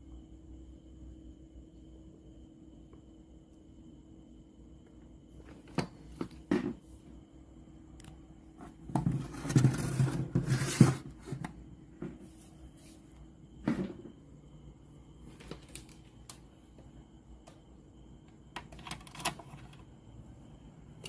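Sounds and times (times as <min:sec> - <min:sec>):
rubbing and scraping: 0:08.6 - 0:11.5.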